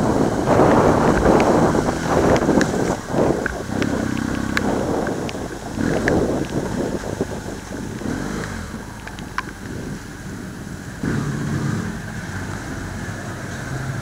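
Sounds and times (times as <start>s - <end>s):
tyres on gravel: 0.0s - 10.2s
motorcycle engine running: 0.0s - 14.0s
wind noise: 0.0s - 14.0s.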